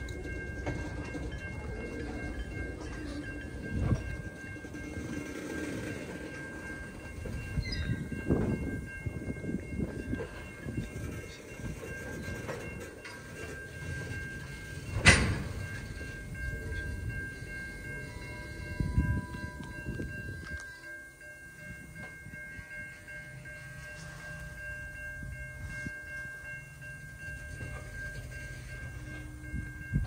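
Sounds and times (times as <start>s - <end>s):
steady high-pitched tones: 0.0s - 30.0s
train wheels clattering on rails: 0.0s - 30.0s
loud sharp clank: 15.0s - 15.6s.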